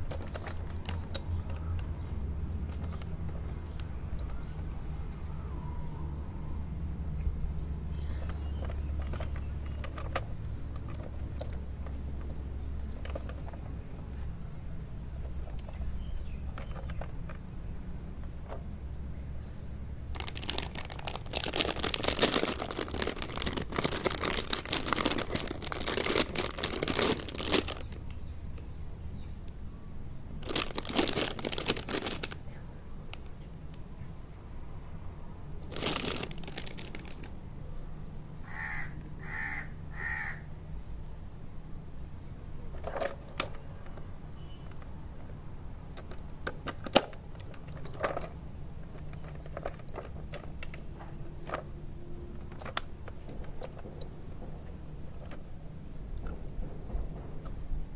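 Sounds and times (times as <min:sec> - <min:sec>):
plastic packaging crinkling: 0:20.1 - 0:28.0, 0:30.4 - 0:32.4, 0:35.6 - 0:37.3.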